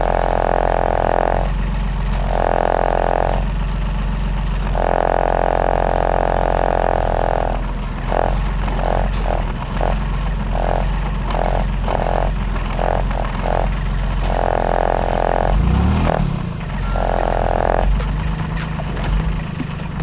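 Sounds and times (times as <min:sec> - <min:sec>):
diesel engine running: 0:00.0 - 0:20.0
stop-start whine: 0:15.6 - 0:20.0.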